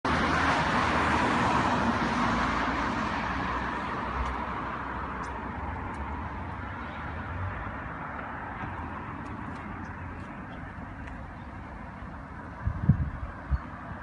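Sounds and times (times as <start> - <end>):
street traffic noise: 0.0 - 14.0.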